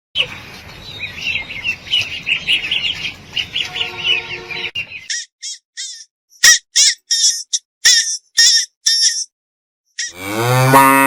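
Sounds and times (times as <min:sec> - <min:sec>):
birds chirping: 0:00.2 - 0:07.2
high-pitched squawks: 0:03.6 - 0:09.3.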